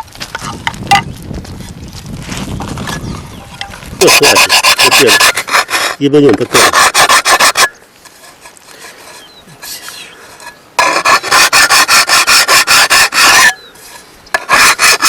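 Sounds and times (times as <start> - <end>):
fast rhythmic rasping strokes: 4.0 - 15.0.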